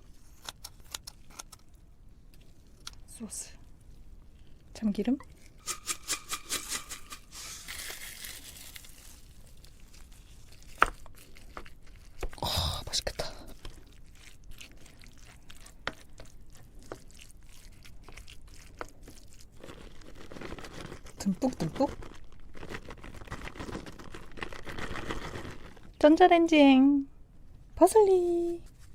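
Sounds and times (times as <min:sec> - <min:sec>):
soft crinkling: 0:00.0 - 0:05.6, 0:07.5 - 0:26.0
spoon stirring rice: 0:13.4 - 0:21.1.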